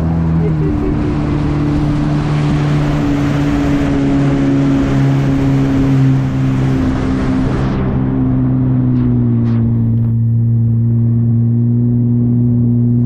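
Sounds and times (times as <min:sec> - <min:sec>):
jet ski engine running: 0:00.0 - 0:13.0.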